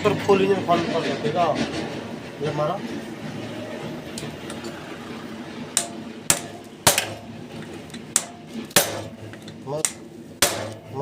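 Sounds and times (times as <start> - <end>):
hammer striking metal: 5.7 - 11.0.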